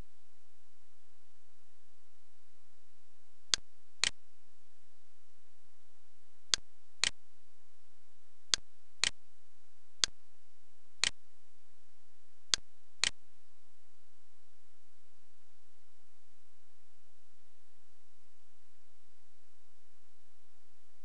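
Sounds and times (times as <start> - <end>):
faint steady hiss: 0.0 - 21.0.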